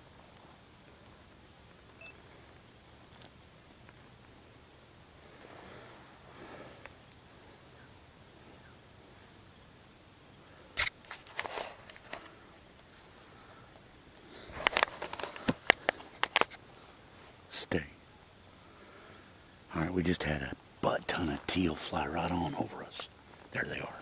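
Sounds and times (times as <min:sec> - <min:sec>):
faint high hum: 0:00.0 - 0:24.0
sharp clicks and rustling: 0:10.8 - 0:12.9, 0:14.5 - 0:16.6.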